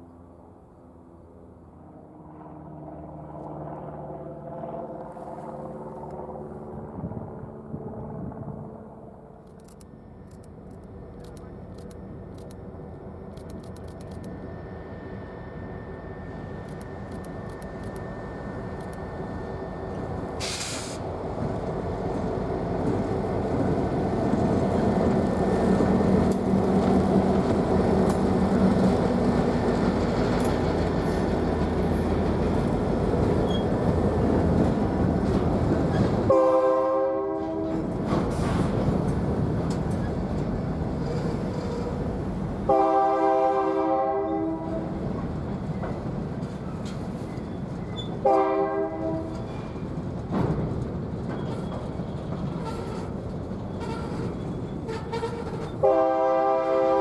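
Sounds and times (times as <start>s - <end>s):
diesel locomotive approaching: 0.0s - 57.0s
train air horn: 36.3s - 38.0s, 42.7s - 45.0s, 48.2s - 49.6s, 52.6s - 53.1s, 53.7s - 57.0s.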